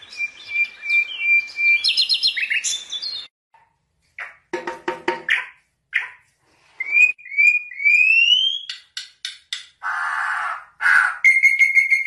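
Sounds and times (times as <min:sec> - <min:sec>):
long pulsing bird whistle: 0:00.0 - 0:03.3, 0:06.8 - 0:08.8, 0:11.2 - 0:12.0
rising whistled bird notes: 0:00.0 - 0:03.3, 0:06.8 - 0:08.8, 0:10.9 - 0:12.0
sharp bird chirps: 0:00.0 - 0:03.3, 0:10.9 - 0:12.0
harsh raspy bird calls: 0:09.8 - 0:12.0.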